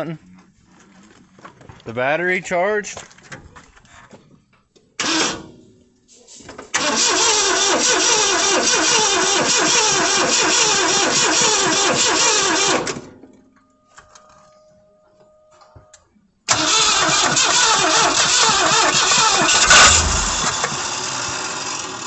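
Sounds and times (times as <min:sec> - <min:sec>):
engine starter cranking: 0:05.0 - 0:05.4, 0:06.7 - 0:12.9, 0:16.5 - 0:20.9.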